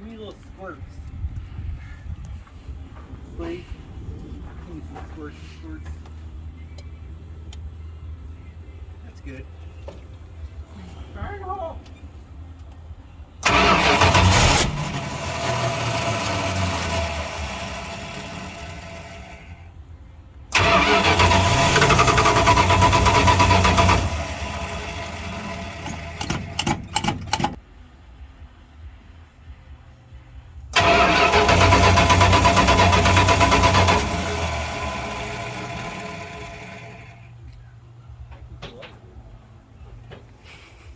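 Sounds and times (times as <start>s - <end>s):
engine sputtering: 13.4s - 19.6s, 20.5s - 27.6s, 30.7s - 37.4s
truck engine starting and dying: 13.4s - 19.9s, 20.5s - 27.6s, 30.7s - 37.5s.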